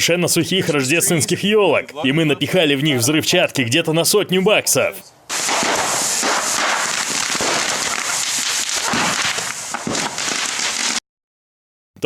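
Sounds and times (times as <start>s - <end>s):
firecrackers crackling: 5.3s - 11.0s.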